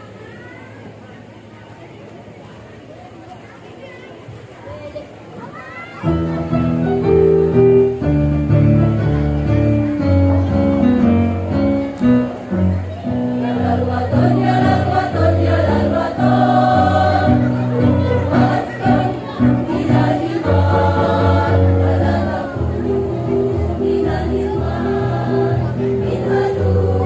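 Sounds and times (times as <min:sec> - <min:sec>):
musical accompaniment: 0:06.1 - 0:27.0
women's choir singing: 0:13.1 - 0:27.0.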